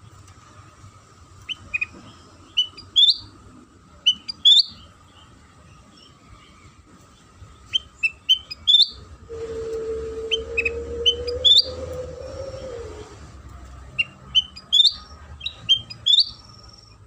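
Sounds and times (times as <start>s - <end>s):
steady low hum: 0.0s - 17.0s
bird chirping: 1.4s - 3.4s, 4.0s - 9.1s, 10.2s - 13.2s, 13.8s - 17.0s.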